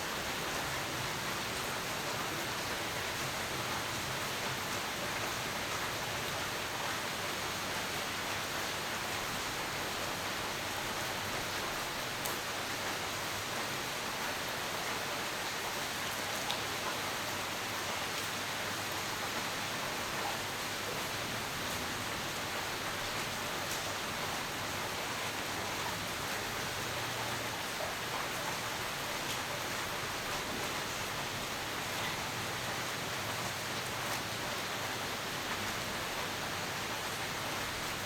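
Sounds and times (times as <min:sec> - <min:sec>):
steady rain falling: 0:00.0 - 0:38.0
faint tick of raindrop: 0:12.2 - 0:13.0, 0:16.0 - 0:17.0, 0:23.0 - 0:23.9.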